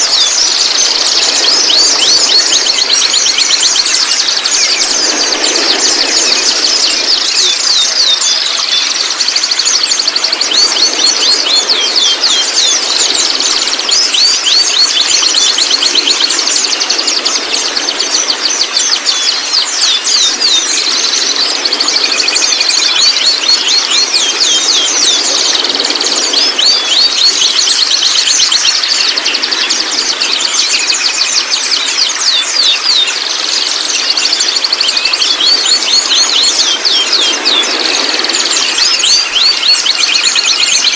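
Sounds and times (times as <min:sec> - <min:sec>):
birds twittering and chirping: 0:00.0 - 0:40.9.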